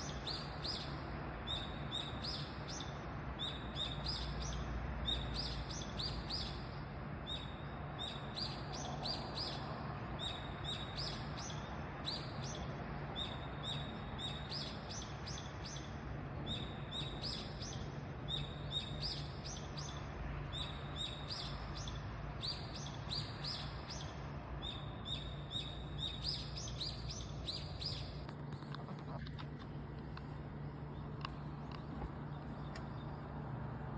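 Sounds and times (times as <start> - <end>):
steady low hum: 14.0 - 33.9.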